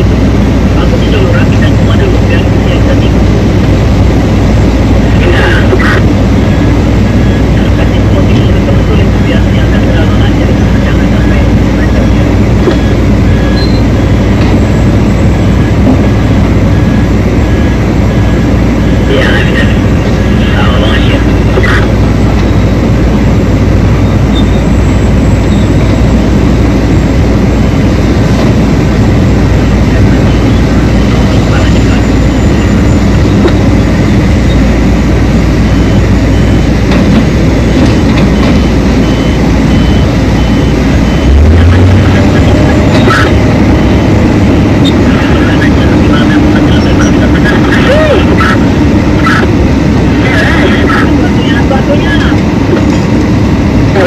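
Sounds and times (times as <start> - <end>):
large diesel engine running: 0.0 - 54.0
reversing alarm beeping: 11.0 - 19.0, 21.2 - 28.2, 29.1 - 49.5.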